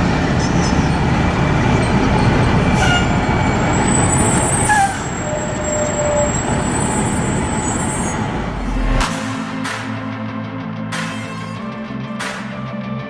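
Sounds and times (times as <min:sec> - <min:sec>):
heavy vehicle and road traffic: 0:00.0 - 0:10.2
thin high squeal: 0:01.7 - 0:09.0, 0:10.9 - 0:11.9
music: 0:08.4 - 0:13.0.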